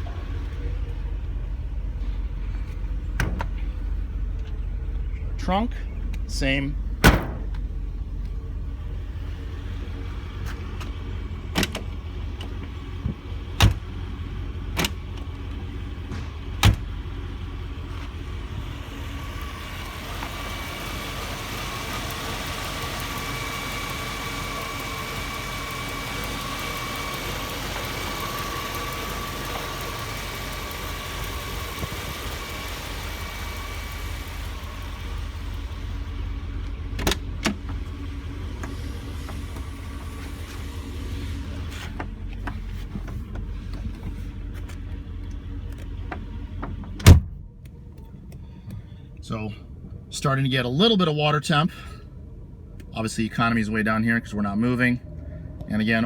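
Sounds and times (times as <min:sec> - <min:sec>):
car engine idling: 0:00.0 - 0:56.0
sharp engine knocks: 0:03.1 - 0:03.8, 0:07.0 - 0:07.7, 0:16.0 - 0:17.1, 0:36.6 - 0:37.9.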